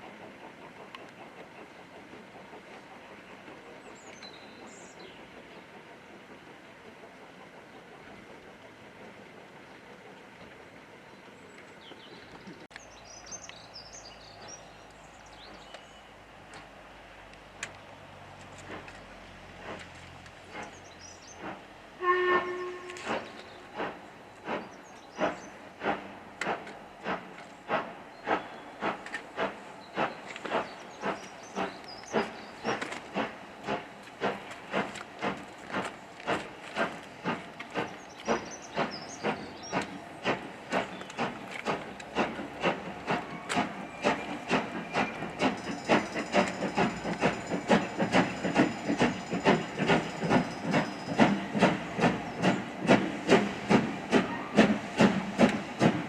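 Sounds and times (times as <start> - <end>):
faint birdsong: 0.4 - 16.6, 20.4 - 21.6, 22.4 - 26.1, 27.1 - 33.8, 35.9 - 55.8
locomotive exhaust beats: 18.3 - 56.0
steam locomotive whistle: 22.0 - 23.2, 54.2 - 54.8.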